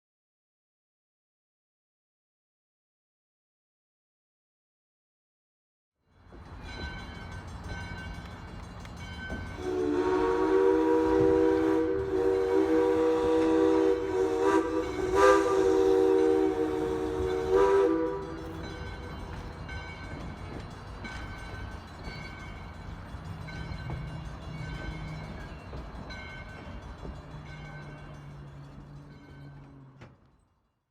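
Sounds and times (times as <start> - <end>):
train rumbling: 6.1 - 30.6
locomotive horn chord: 9.6 - 19.1.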